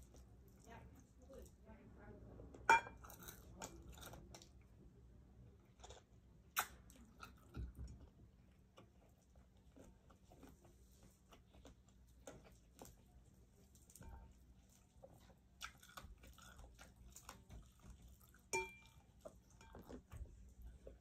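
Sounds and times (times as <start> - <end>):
chewing and lip smacks: 5.6 - 21.0.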